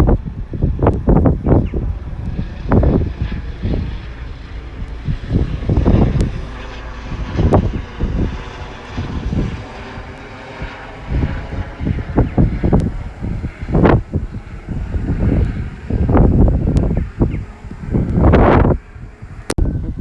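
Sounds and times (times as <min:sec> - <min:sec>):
diesel train engine drone: 0:00.0 - 0:20.0
wind buffeting microphone: 0:00.0 - 0:20.0.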